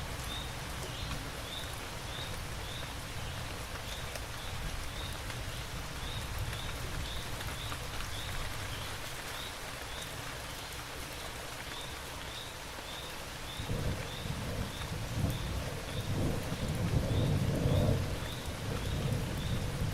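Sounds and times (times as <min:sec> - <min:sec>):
steady rain: 0:00.0 - 0:19.9
low thunder rumble: 0:13.6 - 0:19.9.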